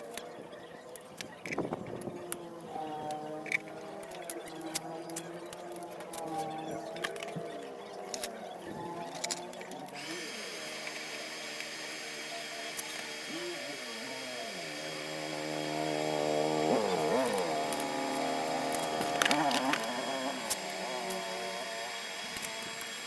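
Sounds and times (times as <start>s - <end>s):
motor-driven grater whining: 0.0s - 23.0s
sharp clicks: 16.5s - 23.0s.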